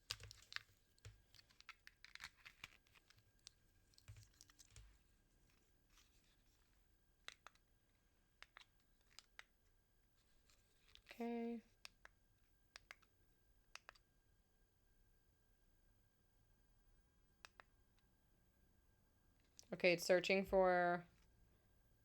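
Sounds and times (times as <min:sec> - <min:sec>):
small device clicks and rustles: 0:00.0 - 0:06.6, 0:07.2 - 0:07.7, 0:08.4 - 0:09.6, 0:10.4 - 0:11.2.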